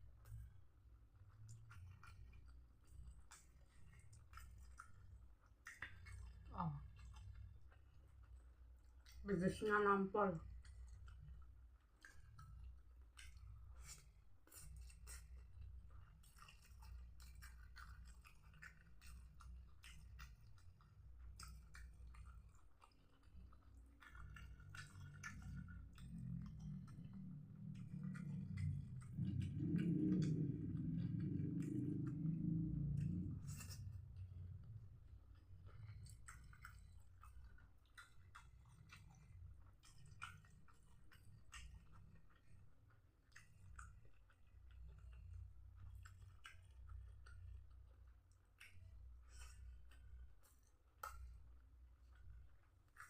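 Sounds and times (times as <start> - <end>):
close-up chewing: 0.0 - 53.0
steady low hum: 24.0 - 44.2.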